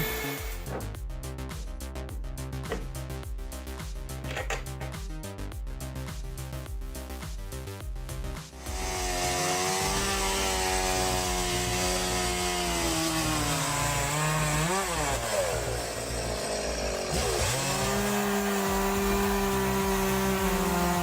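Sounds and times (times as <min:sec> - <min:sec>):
chainsaw engine running: 0:00.0 - 0:00.7, 0:08.6 - 0:21.0.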